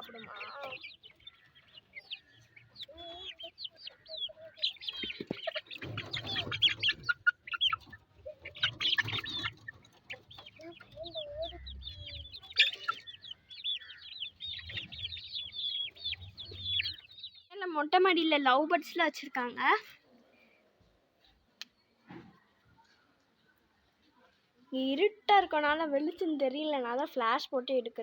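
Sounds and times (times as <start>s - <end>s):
chickens clucking: 0.0s - 17.5s
high chick chirps: 0.0s - 17.5s.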